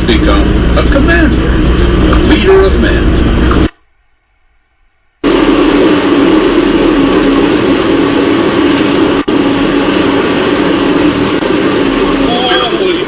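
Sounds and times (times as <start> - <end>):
vehicle engine and road noise: 0.0 - 3.8.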